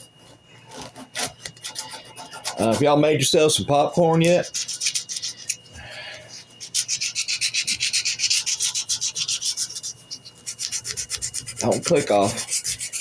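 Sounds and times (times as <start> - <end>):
sanding strip rubbing on wood: 1.1 - 2.9, 4.3 - 5.6, 6.6 - 13.0.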